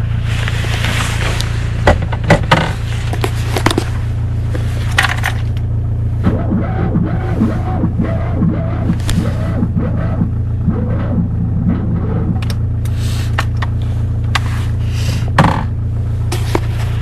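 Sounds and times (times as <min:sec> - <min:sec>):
car engine low rumble: 0:00.0 - 0:17.0
sharp clicks and knocks: 0:01.8 - 0:03.9.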